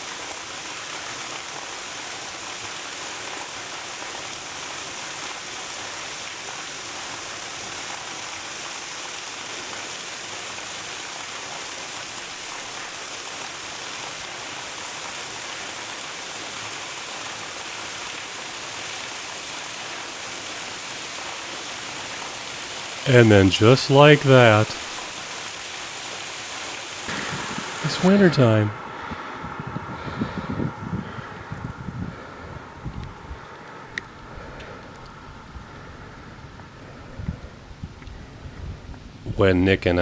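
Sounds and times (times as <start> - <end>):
waterfall rushing: 23.1 - 25.0, 26.9 - 37.1.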